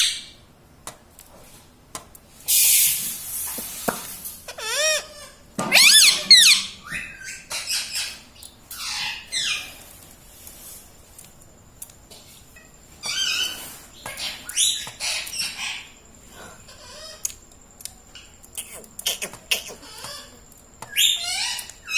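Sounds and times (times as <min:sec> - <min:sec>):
parakeet squawking: 0:04.5 - 0:09.8, 0:13.1 - 0:16.0, 0:18.2 - 0:21.9.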